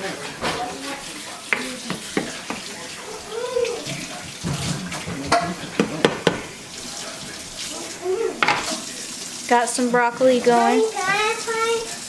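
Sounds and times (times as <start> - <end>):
water running from tap: 0.0 - 12.0
kitchenware clicks and knocks: 0.2 - 2.7, 3.8 - 6.6, 8.4 - 8.8.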